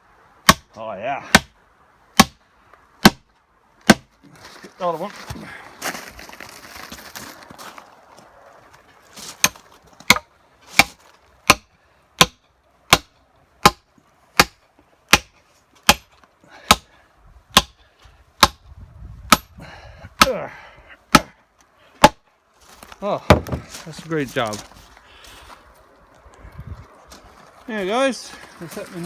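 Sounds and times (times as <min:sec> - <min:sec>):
hammer striking iron spike: 0:15.9 - 0:16.1.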